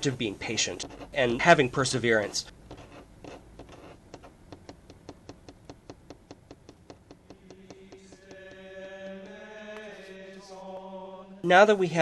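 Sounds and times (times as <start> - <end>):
quick even ticking: 4.5 - 8.7.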